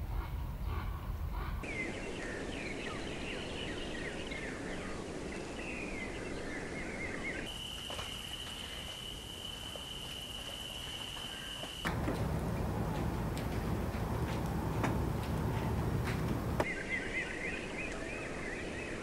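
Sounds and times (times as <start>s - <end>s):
background hiss: 0.0s - 17.0s
birds chirping: 11.9s - 17.7s.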